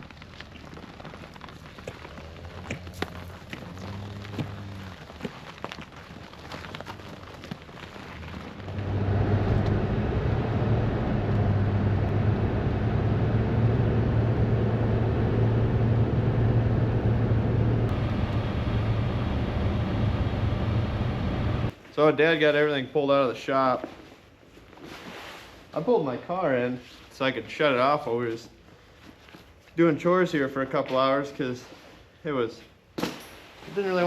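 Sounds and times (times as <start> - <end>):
vehicle engine running: 8.6 - 21.7.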